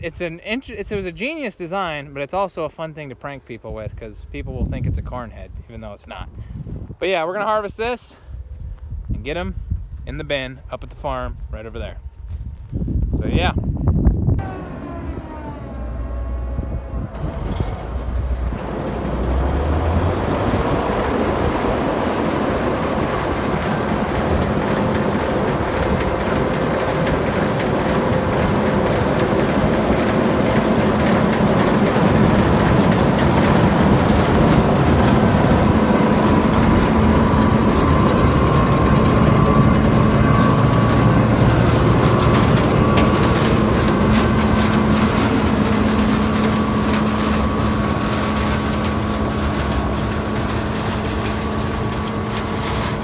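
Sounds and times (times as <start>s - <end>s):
combine harvester running: 14.3s - 53.0s.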